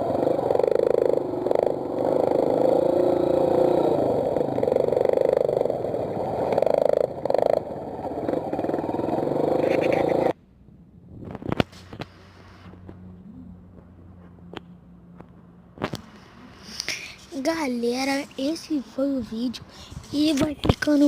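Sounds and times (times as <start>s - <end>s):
motorbike engine buzzing: 0.0s - 10.4s.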